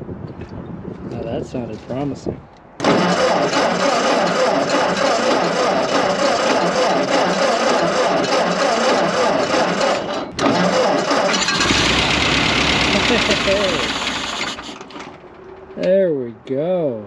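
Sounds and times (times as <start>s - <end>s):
tractor engine cranking: 2.8s - 15.9s.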